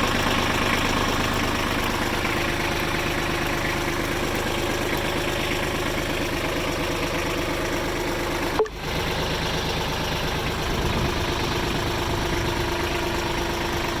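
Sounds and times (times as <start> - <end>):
diesel engine idling: 0.0 - 14.0
short click: 8.6 - 8.8.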